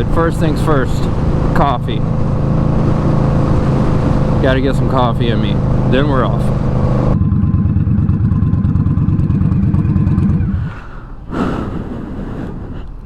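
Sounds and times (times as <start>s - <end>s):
motorcycle engine exhaust rumble: 0.0s - 12.7s.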